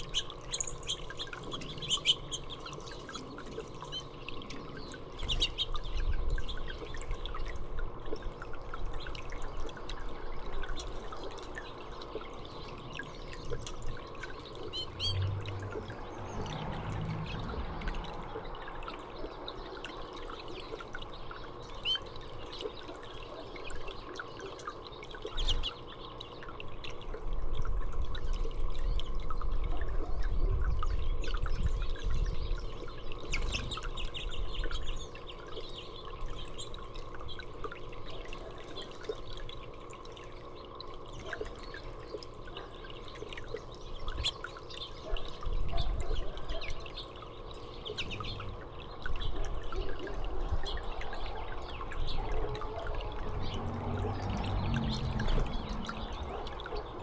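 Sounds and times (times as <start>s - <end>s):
small birds chirping: 0.0s - 7.5s, 10.6s - 26.5s, 30.9s - 39.2s, 40.5s - 52.8s
water trickling and splashing: 0.0s - 57.0s
low rumble: 53.1s - 57.0s.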